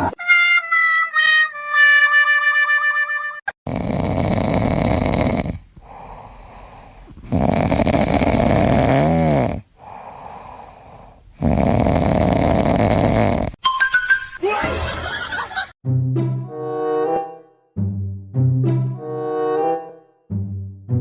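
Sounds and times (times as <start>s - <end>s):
pet snoring: 3.7s - 13.6s
quiet breaths: 4.7s - 8.6s, 9.5s - 11.8s.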